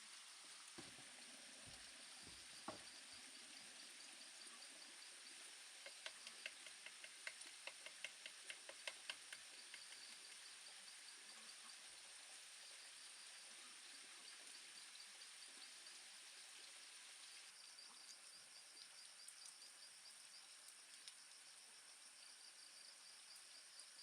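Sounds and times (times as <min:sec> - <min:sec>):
light ticks: 0:05.8 - 0:10.4, 0:20.9 - 0:21.2.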